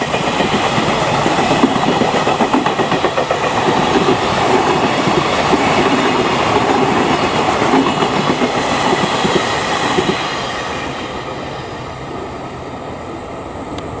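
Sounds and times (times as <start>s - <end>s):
train wheels clattering on rails: 0.0s - 14.0s.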